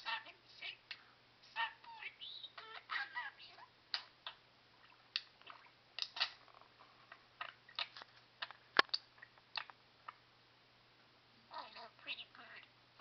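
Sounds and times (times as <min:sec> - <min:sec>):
budgerigar talking: 0:00.0 - 0:03.7, 0:11.5 - 0:12.7
budgerigar chirps: 0:01.5 - 0:03.7.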